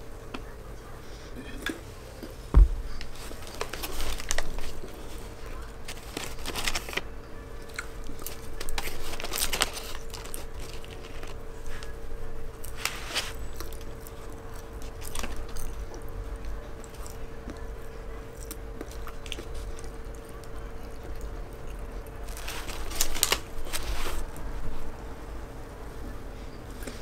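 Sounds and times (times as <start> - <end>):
paper wrapper crinkling: 3.0 - 7.1, 8.0 - 12.0, 12.6 - 14.0, 22.2 - 24.9.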